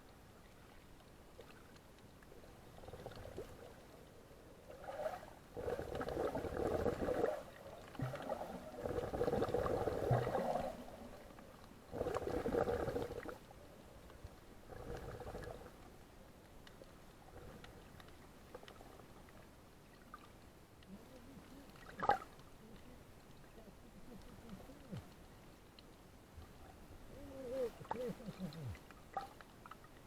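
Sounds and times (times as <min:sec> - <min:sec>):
water gurgling: 0:02.4 - 0:13.5, 0:14.5 - 0:15.8, 0:26.6 - 0:30.0.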